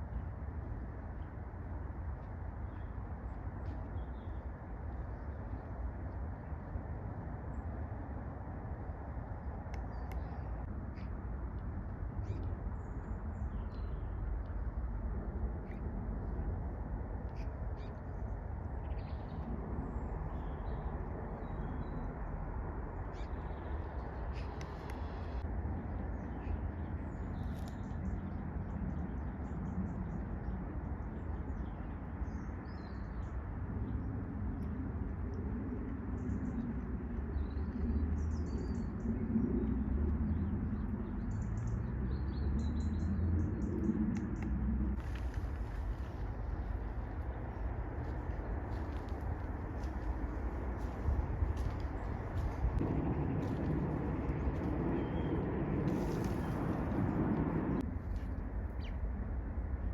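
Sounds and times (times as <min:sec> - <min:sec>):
low rumbling noise: 0:00.0 - 0:59.9
birds chirping: 0:45.0 - 0:57.8.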